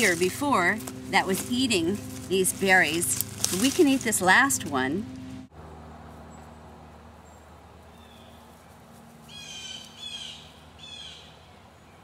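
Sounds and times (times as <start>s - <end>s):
bird calling harshly: 9.3s - 11.2s.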